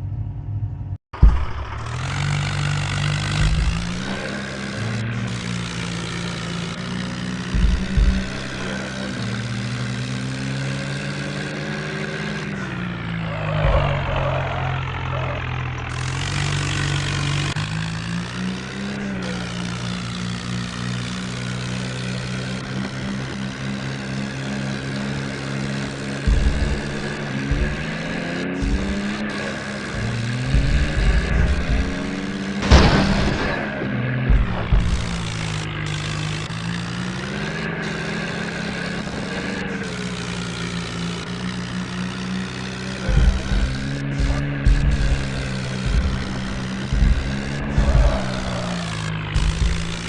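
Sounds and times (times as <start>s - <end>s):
vehicle engine running under load: 0.0s - 50.0s
low thumps: 1.2s - 4.2s, 7.4s - 8.7s, 26.2s - 29.3s, 29.9s - 35.7s, 43.2s - 50.0s.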